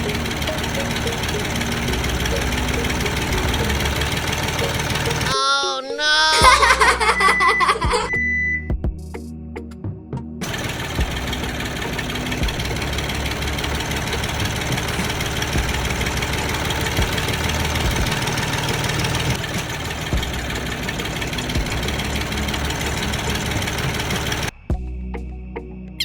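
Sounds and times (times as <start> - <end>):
small motor running: 0.0 - 5.3, 10.4 - 24.5.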